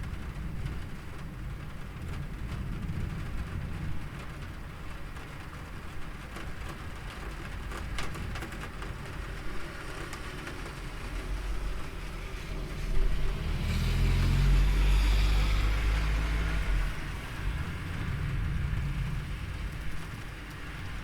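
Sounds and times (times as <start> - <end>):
rain falling: 0.0 - 21.0
thunder rumbling: 10.5 - 21.0.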